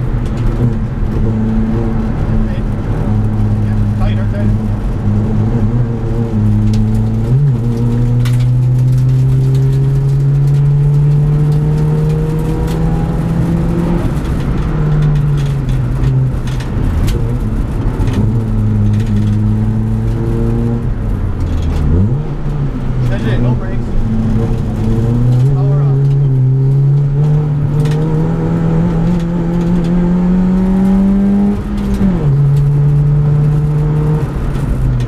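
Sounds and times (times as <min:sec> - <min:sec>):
car engine revving: 0:00.0 - 0:35.0
sharp clicks and knocks: 0:06.4 - 0:23.2.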